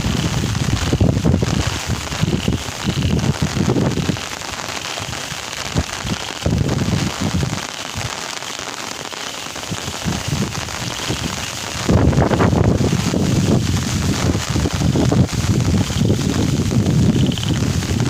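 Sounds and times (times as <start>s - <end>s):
wind rumbling on microphone: 0.0s - 8.7s, 9.5s - 18.0s
steady rain falling: 0.0s - 18.0s.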